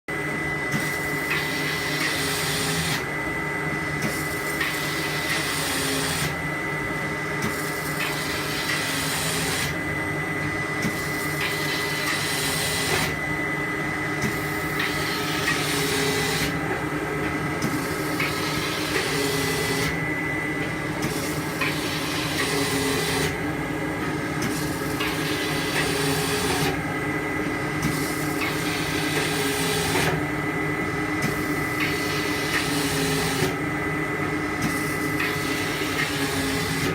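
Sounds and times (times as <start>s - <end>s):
machine motor hum: 0.1s - 36.9s
tape feeding and cutting: 17.6s - 20.0s, 21.0s - 23.4s, 24.4s - 26.8s, 31.2s - 33.6s, 34.6s - 36.9s.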